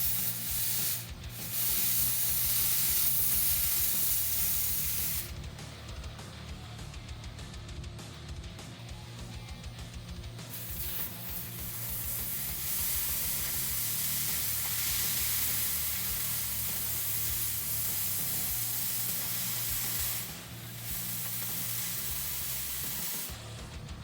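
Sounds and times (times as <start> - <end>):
loud hiss of air jet: 0.0 - 5.4, 10.4 - 23.5.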